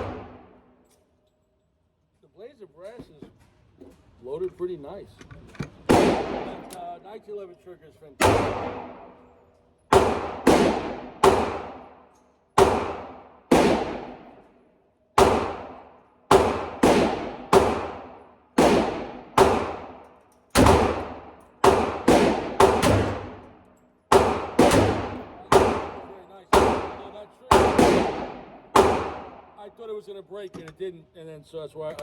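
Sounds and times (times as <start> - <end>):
pistol shots echoing: 0.0 - 0.6, 5.9 - 7.0, 8.2 - 9.3, 9.9 - 14.5, 15.2 - 29.6.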